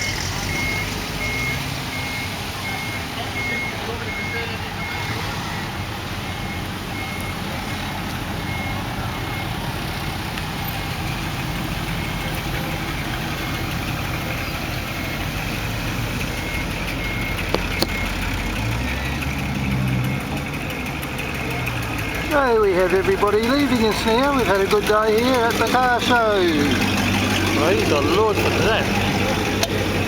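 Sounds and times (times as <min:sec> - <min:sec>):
car engines idling: 0:00.0 - 0:30.0
reversing beeper: 0:00.0 - 0:30.0
deep engine note: 0:15.2 - 0:30.0
sharp clicks: 0:16.9 - 0:18.4.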